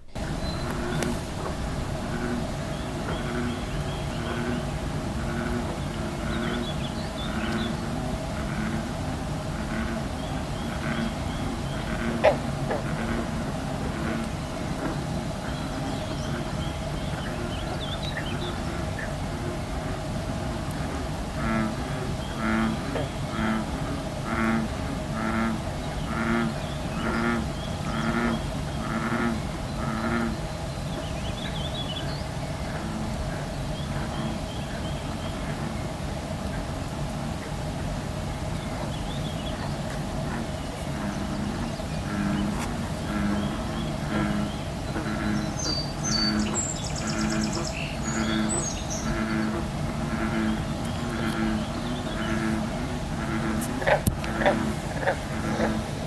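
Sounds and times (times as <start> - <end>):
animal low bleating calls: 0.0 - 3.4, 48.2 - 56.0
repeating low pitched sound: 0.0 - 3.4
faint high bird chirps: 0.0 - 3.5
birds chirping: 0.0 - 56.0.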